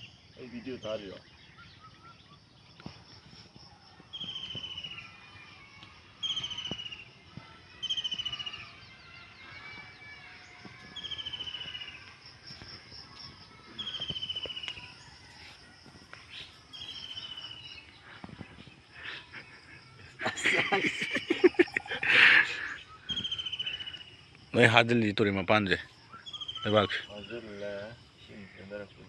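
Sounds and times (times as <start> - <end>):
insects chirring: 0.0 - 29.0
bird trilled call: 6.2 - 7.1, 7.8 - 8.8, 10.9 - 12.1, 19.0 - 24.2, 26.1 - 27.3.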